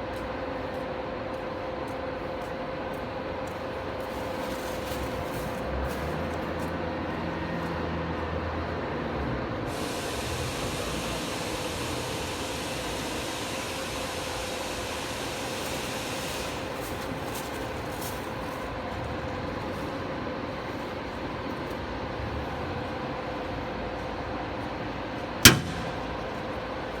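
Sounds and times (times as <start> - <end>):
diesel generator running: 2.1 - 27.0
high hiss: 9.7 - 17.8.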